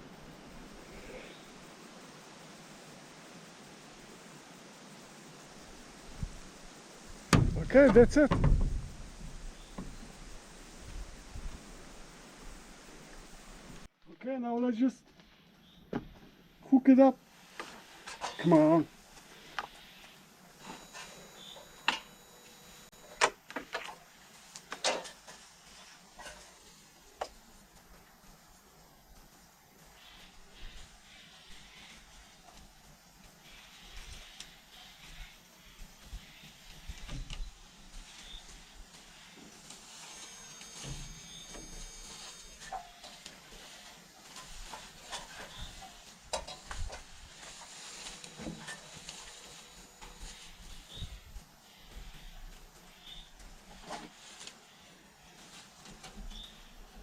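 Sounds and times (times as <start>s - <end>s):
faint hiss: 0.0s - 57.0s
sharp knock: 7.3s - 8.6s.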